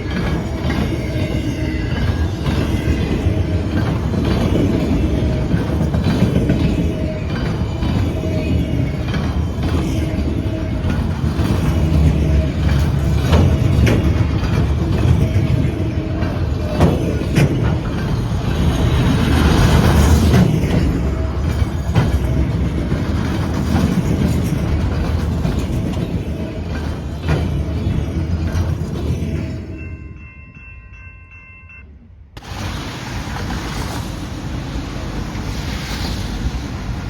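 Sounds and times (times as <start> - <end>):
wheels clicking over rail joints: 0.0 - 29.8, 32.4 - 35.5
freight train rolling past: 0.0 - 37.0.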